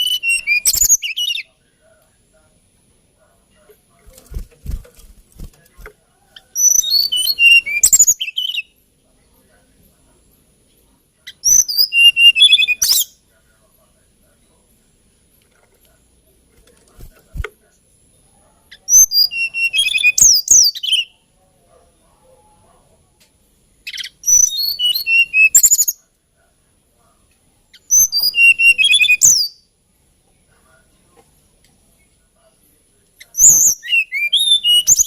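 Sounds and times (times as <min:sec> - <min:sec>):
bird singing whistled notes: 0:00.0 - 0:01.5, 0:06.5 - 0:08.8, 0:11.3 - 0:13.2, 0:18.8 - 0:21.2, 0:23.9 - 0:26.0, 0:27.7 - 0:29.7, 0:33.2 - 0:35.0.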